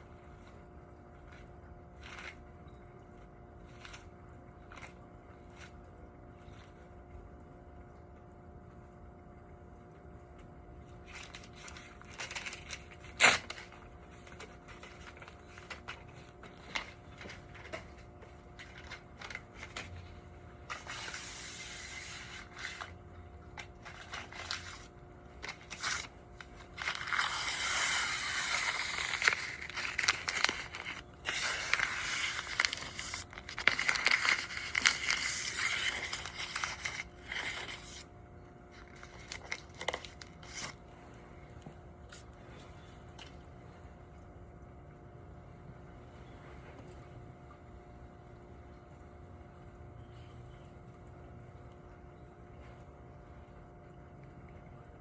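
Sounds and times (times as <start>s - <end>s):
crinkling scraping handling noise: 0.0s - 7.1s, 10.8s - 40.9s
faint electrical hum: 0.0s - 55.0s.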